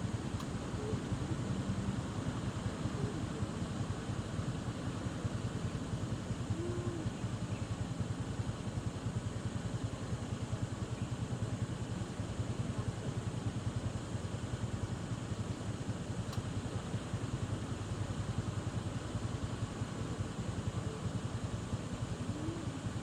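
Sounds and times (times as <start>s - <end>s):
motorcycle engine running: 0.0s - 6.7s
road and wind hiss: 0.0s - 10.8s.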